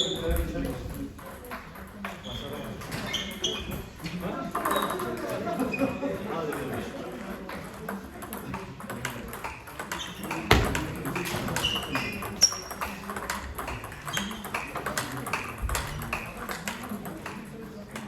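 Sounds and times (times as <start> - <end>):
loud knock: 10.5 - 11.6.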